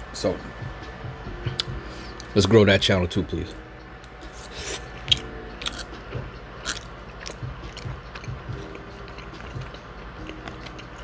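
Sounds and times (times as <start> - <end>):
wet chewing of food: 6.6 - 11.0.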